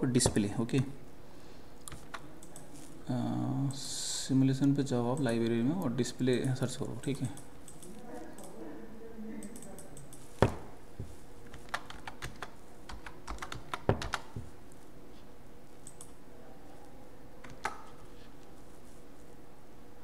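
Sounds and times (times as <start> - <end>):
computer keyboard typing: 7.2 - 8.5, 11.4 - 14.5, 15.8 - 16.2, 17.4 - 18.0.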